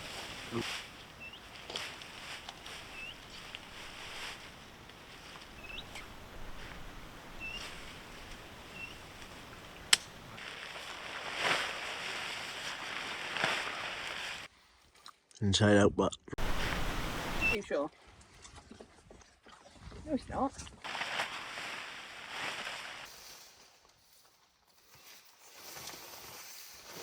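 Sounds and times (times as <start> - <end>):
small bird chirping: 0.0 - 10.4, 16.4 - 17.6
tent fabric rustling: 0.0 - 14.5, 16.4 - 17.6, 20.8 - 23.9, 24.7 - 27.0.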